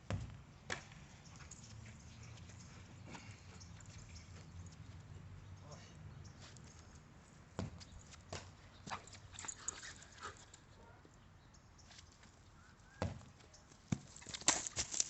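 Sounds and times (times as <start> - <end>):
dog paws thumping and scuffing: 13.9 - 15.0.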